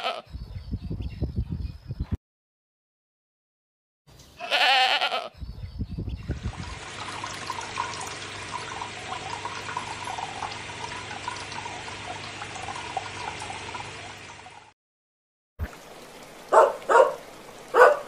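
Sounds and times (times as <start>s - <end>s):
goat bleating: 0.0s - 0.2s, 4.4s - 5.3s
aquarium water bubbling: 6.3s - 14.8s, 15.6s - 18.0s.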